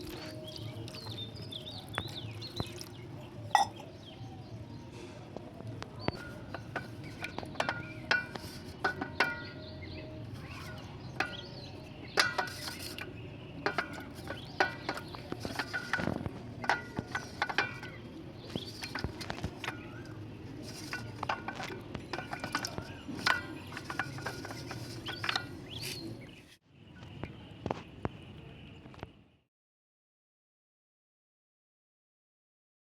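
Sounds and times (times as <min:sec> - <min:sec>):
slate pencils crunching: 0:00.0 - 0:03.0.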